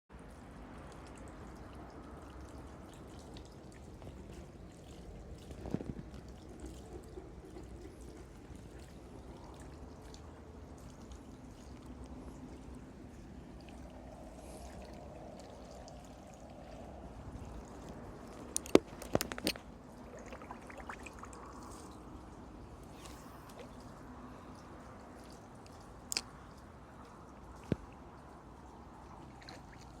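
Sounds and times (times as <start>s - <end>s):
river water flowing: 0.4s - 30.0s.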